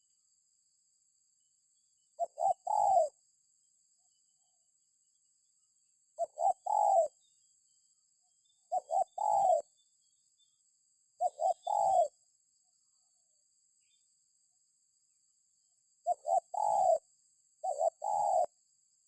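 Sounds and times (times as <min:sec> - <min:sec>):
dove cooing: 0:02.2 - 0:03.2, 0:06.2 - 0:07.2, 0:08.7 - 0:09.7, 0:11.2 - 0:12.1, 0:16.0 - 0:17.0, 0:17.6 - 0:18.5.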